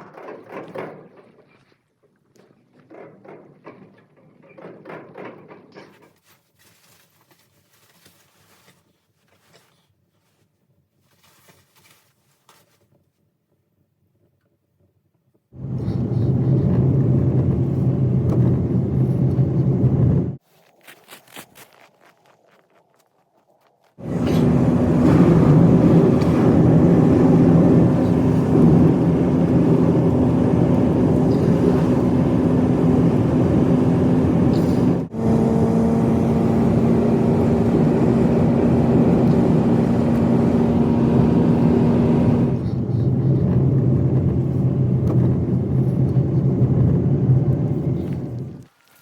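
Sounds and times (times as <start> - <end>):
road noise: 15.6 - 20.4, 23.9 - 49.0
vehicle engine droning: 15.6 - 20.4, 24.0 - 48.7.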